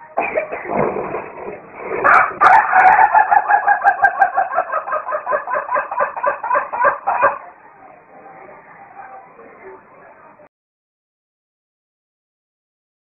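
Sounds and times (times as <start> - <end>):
chicken clucking rapidly: 2.0 - 7.4.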